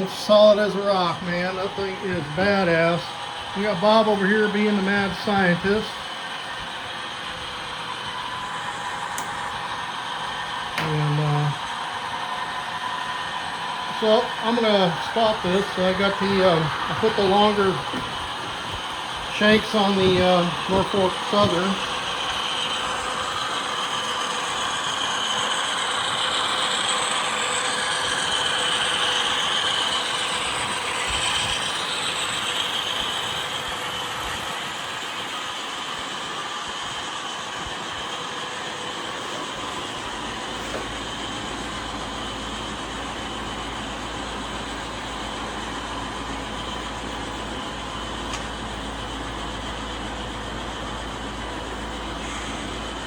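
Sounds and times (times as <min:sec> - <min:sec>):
model train motors whining: 0:00.0 - 0:53.0
wheels rattling over track: 0:13.8 - 0:41.6.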